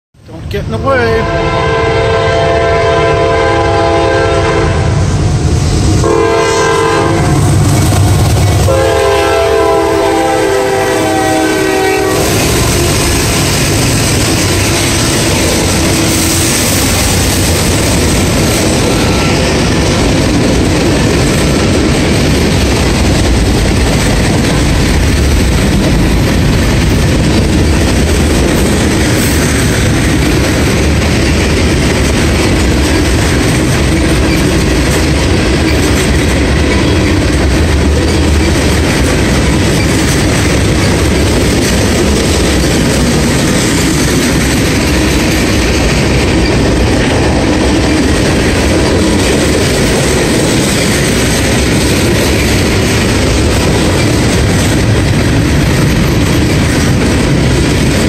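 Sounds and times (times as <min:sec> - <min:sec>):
diesel locomotives rumbling: 0:00.2 - 0:58.0
train horn blasts: 0:01.2 - 0:05.1, 0:06.0 - 0:07.6, 0:08.6 - 0:13.7, 0:14.4 - 0:16.3
freight car wheels clickety-clack: 0:12.2 - 0:58.0.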